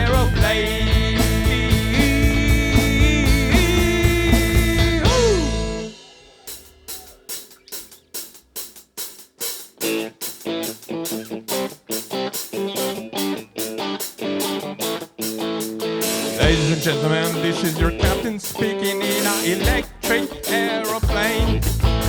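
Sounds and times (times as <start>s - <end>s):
even ticking beat: 0.0s - 5.8s, 16.4s - 22.0s
electric guitar: 0.0s - 6.0s, 9.8s - 22.0s
drum kit: 0.0s - 22.0s.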